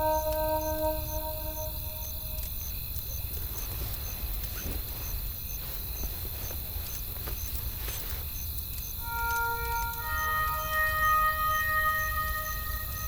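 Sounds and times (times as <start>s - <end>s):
held music chord: 0.0s - 2.6s, 9.0s - 13.0s.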